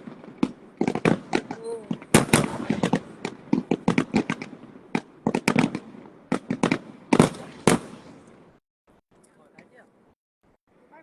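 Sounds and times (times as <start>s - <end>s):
fireworks banging: 0.0s - 8.6s
fireworks crackling: 0.0s - 8.6s.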